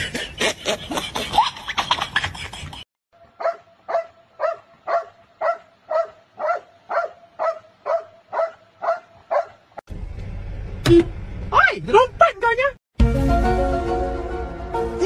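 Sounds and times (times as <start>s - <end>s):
dog barking: 3.4s - 9.6s.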